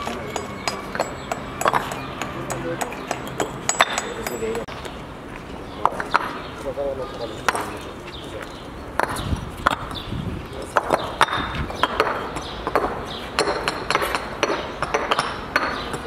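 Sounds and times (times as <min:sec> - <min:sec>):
hammer knocks with ringing clink: 0:00.0 - 0:04.7.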